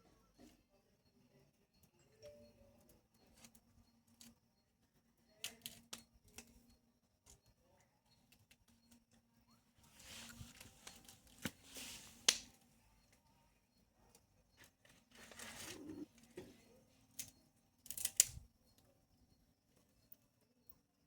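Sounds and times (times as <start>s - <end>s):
rustling brush: 9.8s - 12.3s, 15.1s - 16.1s
bonfire snaps and cracks: 12.2s - 12.5s.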